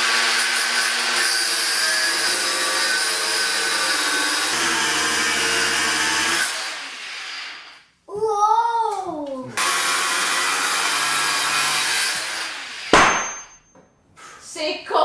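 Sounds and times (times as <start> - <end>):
power saw cutting wood: 0.5 - 6.6.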